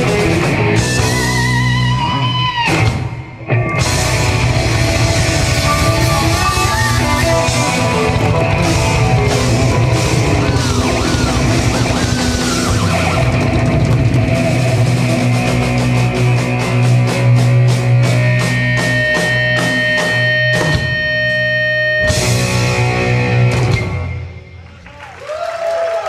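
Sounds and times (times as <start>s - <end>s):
jazz rock band playing: 0.0s - 24.4s.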